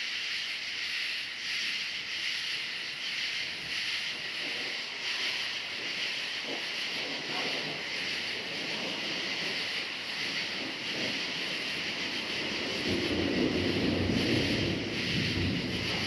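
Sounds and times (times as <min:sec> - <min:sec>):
crickets chirring: 0:00.0 - 0:16.0
distant thunder rumble: 0:07.2 - 0:16.0.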